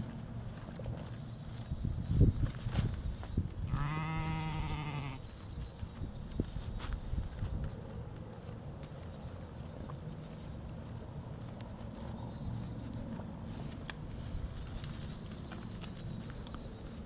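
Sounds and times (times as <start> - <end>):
light clicks on ground: 0.0 - 17.0
soft footsteps: 0.0 - 17.0.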